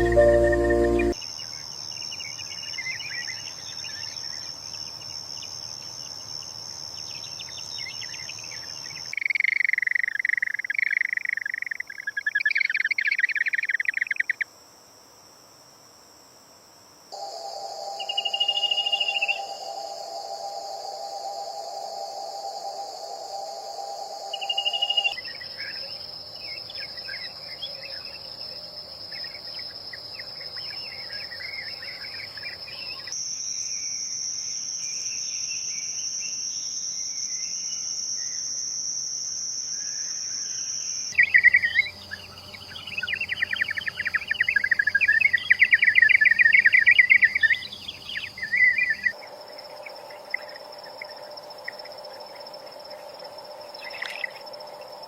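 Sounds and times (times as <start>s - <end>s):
birds chirping: 0.0s - 1.2s, 41.2s - 49.2s
insect drone: 0.0s - 55.0s.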